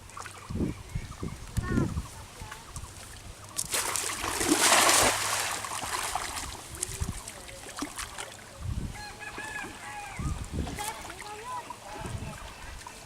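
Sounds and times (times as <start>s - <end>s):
water trickling and sloshing: 0.0s - 13.0s
water splashing: 2.4s - 8.6s.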